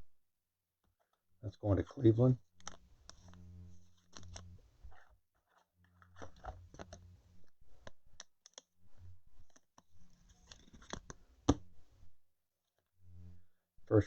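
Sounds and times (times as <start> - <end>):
trading cards flipped by hand: 2.6 - 7.1, 9.4 - 11.7.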